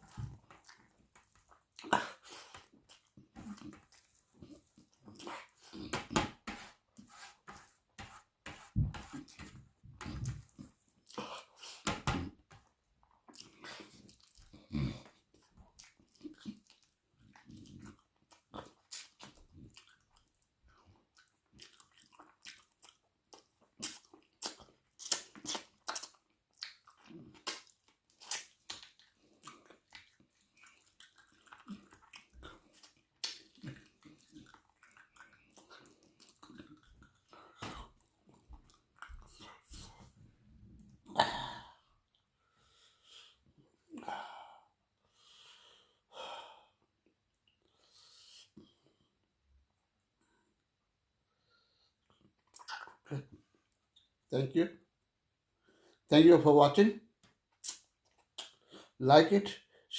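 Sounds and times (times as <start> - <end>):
person chewing food: 0.0 - 8.3, 9.0 - 44.1, 51.4 - 54.1, 57.5 - 59.0.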